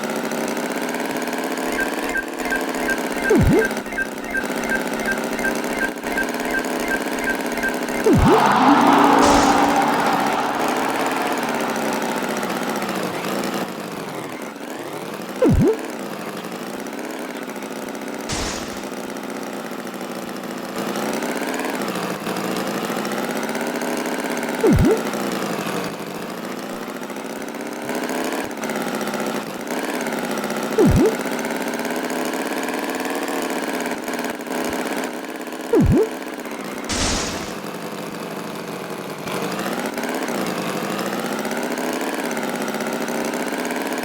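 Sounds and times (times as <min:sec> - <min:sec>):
cartoon tractor engine running: 0:01.5 - 0:14.4, 0:15.4 - 0:16.0, 0:18.3 - 0:19.1, 0:24.6 - 0:25.2, 0:30.8 - 0:31.3, 0:35.7 - 0:36.2, 0:36.9 - 0:37.8
loud swooping sound: 0:01.7 - 0:13.6, 0:18.3 - 0:19.0, 0:36.9 - 0:37.8
sharp knock: 0:06.5 - 0:12.7, 0:18.3 - 0:19.0, 0:36.9 - 0:37.7.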